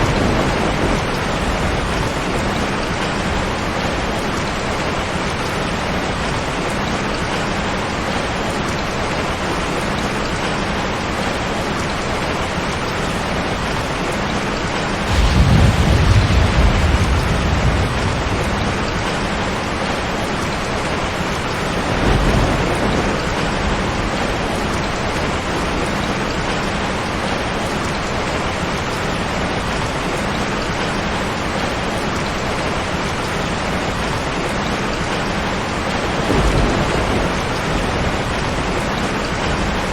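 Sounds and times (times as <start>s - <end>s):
thunder rumbling: 0.0s - 6.6s, 15.0s - 27.8s, 35.4s - 39.9s
heavy rain: 0.0s - 39.9s.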